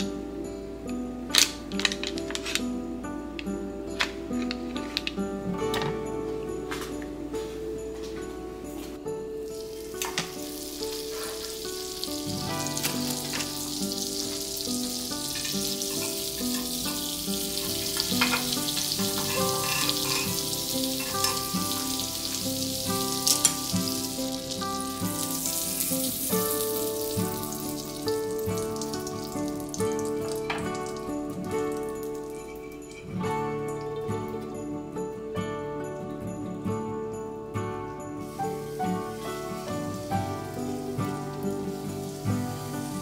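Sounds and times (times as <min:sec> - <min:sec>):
background music: 0:00.0 - 0:43.0
butter sizzling in a pan: 0:09.5 - 0:33.0, 0:38.2 - 0:43.0.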